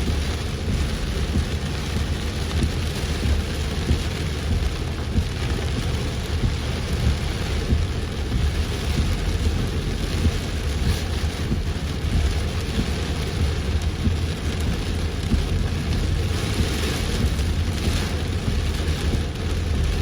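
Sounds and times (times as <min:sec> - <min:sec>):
heavy rain on a car: 0:00.0 - 0:20.0
low rumble: 0:00.0 - 0:20.0.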